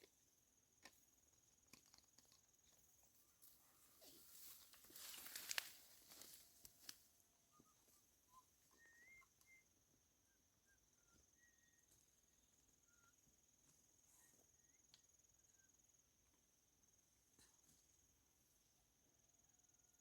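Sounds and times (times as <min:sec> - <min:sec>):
high insect trill: 0:02.4 - 0:07.1
rustling with sharp clicks: 0:04.1 - 0:07.0
small bird chirps: 0:07.5 - 0:13.3.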